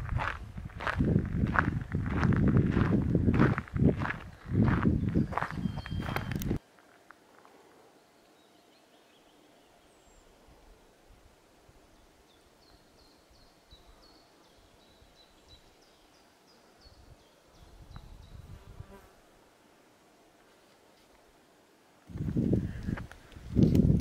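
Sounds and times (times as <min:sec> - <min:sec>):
small bird chirping: 0:04.8 - 0:06.6.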